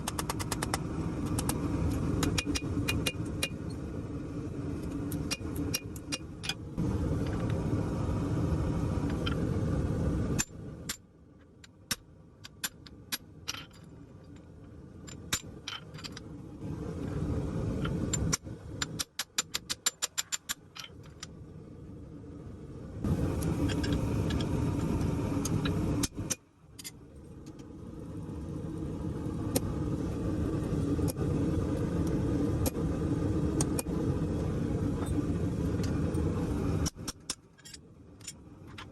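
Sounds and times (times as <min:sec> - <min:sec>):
forge fire roaring: 0:06.7 - 0:10.8, 0:16.4 - 0:18.9, 0:21.5 - 0:26.3, 0:27.5 - 0:37.0.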